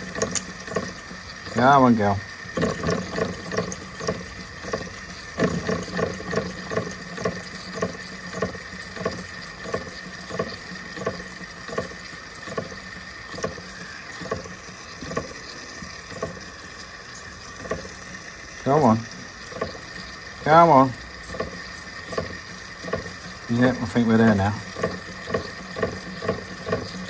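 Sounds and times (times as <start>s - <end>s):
toy steam engine chuffing: 0.0s - 27.0s.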